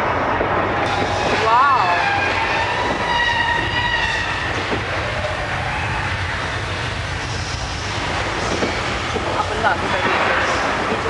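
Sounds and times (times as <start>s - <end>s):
rail and mechanical rumble: 0.0s - 11.0s
high metallic screech: 0.9s - 7.8s.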